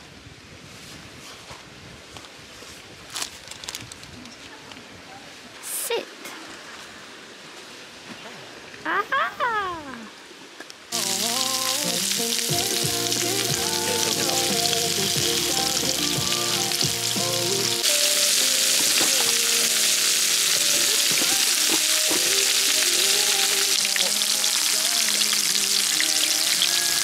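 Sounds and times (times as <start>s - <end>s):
background music: 10.9s - 27.0s
meat sizzling in pan: 10.9s - 27.0s.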